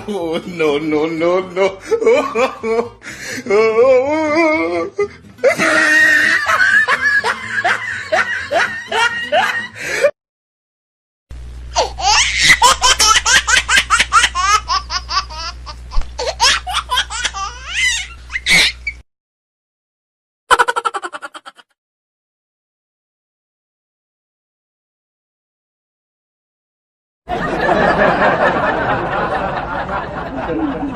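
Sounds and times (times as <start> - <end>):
rhythmic laugh: 0.0 - 3.3, 4.2 - 10.1, 11.8 - 17.6, 20.5 - 21.8, 27.3 - 30.9
high-pitched cackling laugh: 5.4 - 9.8, 11.8 - 18.9, 20.5 - 21.8
steady low hum: 11.3 - 19.0.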